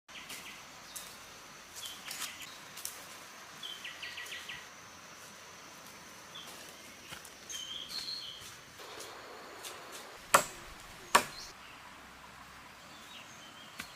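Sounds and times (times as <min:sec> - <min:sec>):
high insect tone: 0:00.1 - 0:11.5
high bird calls: 0:06.4 - 0:11.6.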